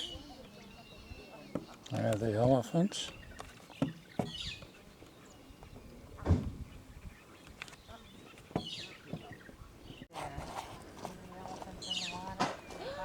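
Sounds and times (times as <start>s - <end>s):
high bird chirps: 2.9s - 6.0s.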